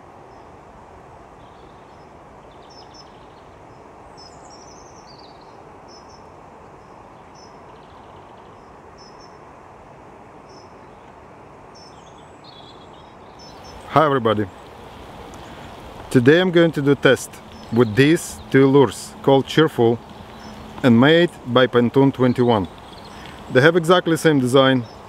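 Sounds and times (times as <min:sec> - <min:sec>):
outdoor background rush: 0:00.0 - 0:25.0
small bird chirping: 0:04.2 - 0:06.3, 0:11.8 - 0:25.0.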